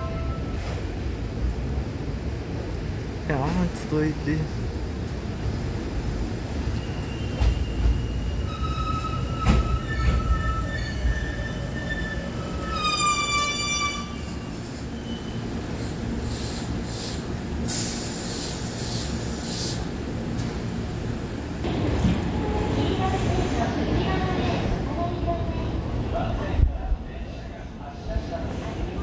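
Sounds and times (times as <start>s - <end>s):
train low rumble: 0.0s - 29.0s
high brake squeals: 6.6s - 15.4s
air hissing bursts: 16.2s - 19.9s.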